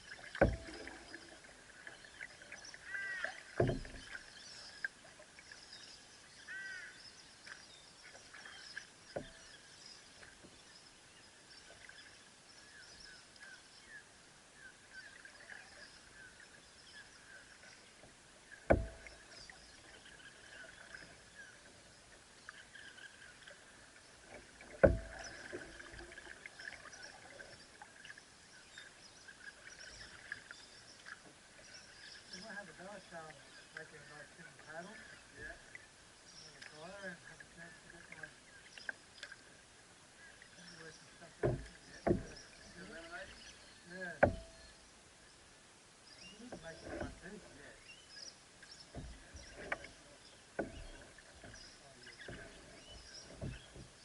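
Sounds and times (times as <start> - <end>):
paddle knocking on canoe hull: 0.3 - 1.2, 2.8 - 4.3, 9.1 - 9.5, 18.5 - 19.6, 24.3 - 26.3, 41.3 - 43.3, 44.1 - 44.7, 48.8 - 54.0.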